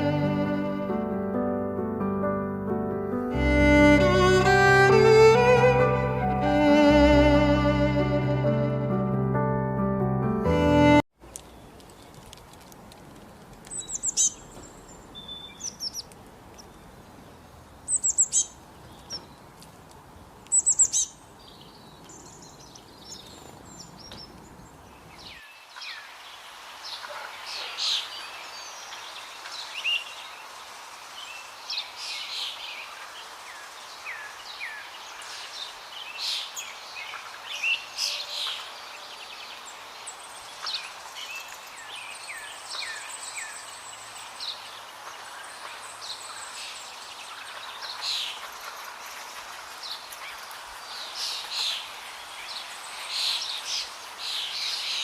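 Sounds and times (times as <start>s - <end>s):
small birds chirping and twittering: 13.6s - 55.0s.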